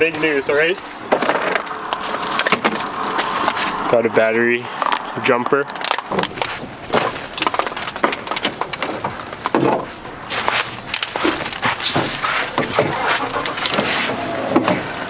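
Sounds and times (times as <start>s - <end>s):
crunching and knocking handling sounds: 5.7s - 14.0s.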